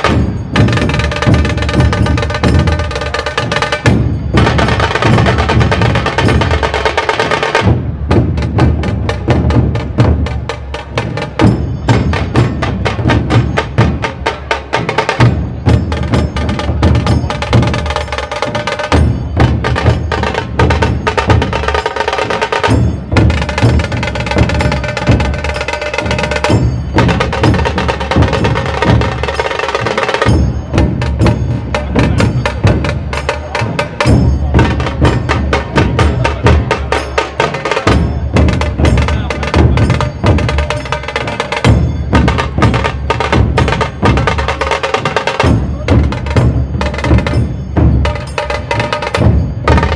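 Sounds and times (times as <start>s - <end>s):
deep dhol drums: 0.0s - 49.9s
sharp tasha drum strokes: 0.0s - 49.9s.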